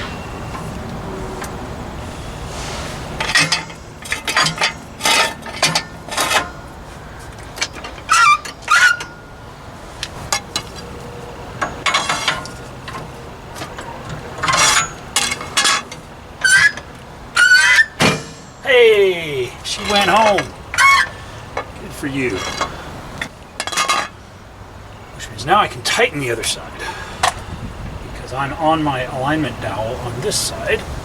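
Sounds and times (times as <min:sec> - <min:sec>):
metal tools clinking on steel: 0:03.2 - 0:09.4, 0:11.6 - 0:24.2.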